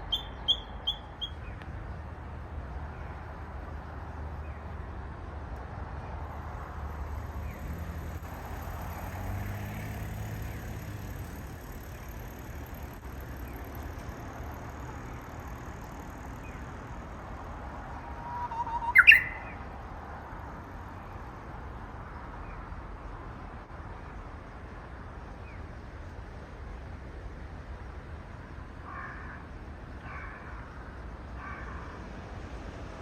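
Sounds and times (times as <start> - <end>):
bird song with rising whistle: 0.0 - 1.4, 18.2 - 19.6
faint short bird chirps: 18.3 - 19.6.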